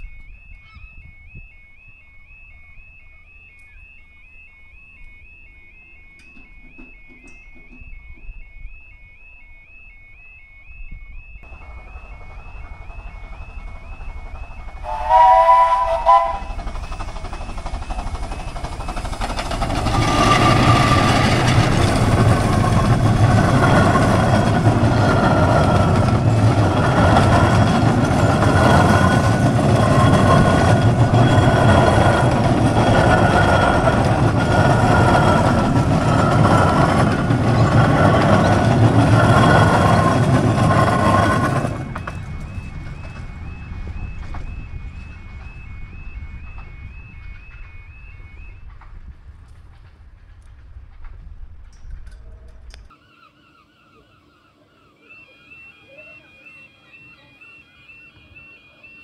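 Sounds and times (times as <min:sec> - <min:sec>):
level crossing warbling alarm: 0:00.0 - 0:47.7, 0:52.9 - 0:59.0
train rumbling and clattering: 0:06.2 - 0:08.5, 0:11.4 - 0:52.9
train horn blasts: 0:14.8 - 0:16.6.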